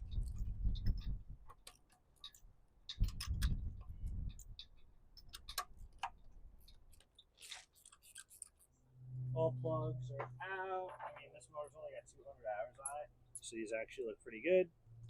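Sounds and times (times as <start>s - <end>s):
dull low handling rumble: 0.0s - 7.1s, 8.6s - 15.0s.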